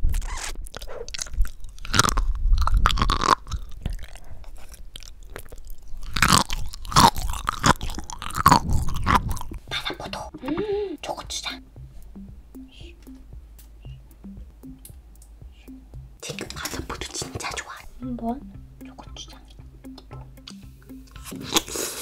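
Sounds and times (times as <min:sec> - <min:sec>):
chewing with sharp clicks: 0:00.6 - 0:10.2, 0:19.4 - 0:21.8.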